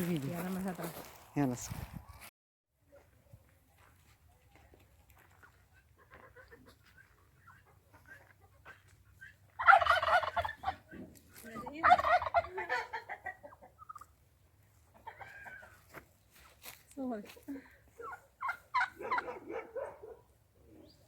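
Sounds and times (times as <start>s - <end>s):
turkey gobbling: 6.0s - 10.9s, 11.7s - 14.2s, 14.9s - 15.8s, 18.0s - 19.6s.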